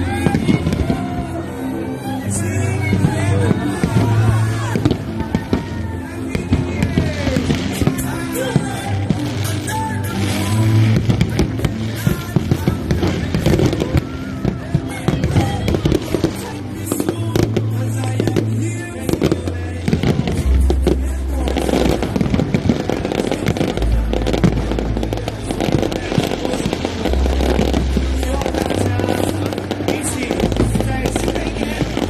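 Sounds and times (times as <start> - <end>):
fireworks bangs and crackles: 0.0 - 32.0
loud music with deep bass: 0.0 - 32.0.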